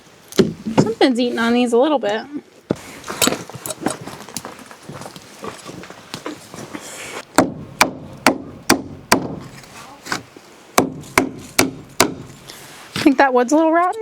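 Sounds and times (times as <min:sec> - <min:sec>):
hammer striking wood: 0:07.3 - 0:09.5, 0:10.8 - 0:12.4.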